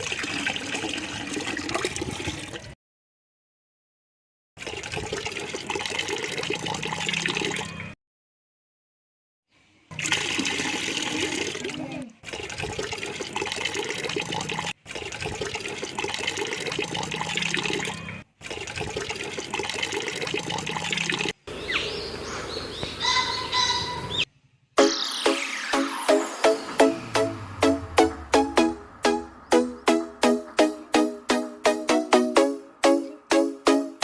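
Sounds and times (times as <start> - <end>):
running water: 9.9 - 21.4.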